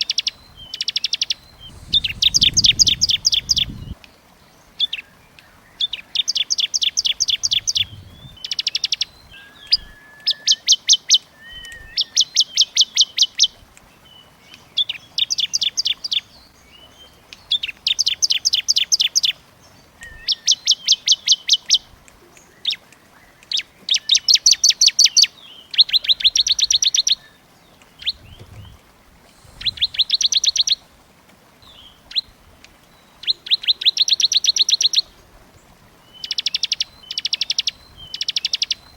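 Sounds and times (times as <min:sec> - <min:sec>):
songbirds singing fast trills: 0:00.0 - 0:30.9, 0:31.6 - 0:38.9
short bird calls: 0:00.6 - 0:04.0, 0:07.0 - 0:12.8, 0:28.0 - 0:30.9.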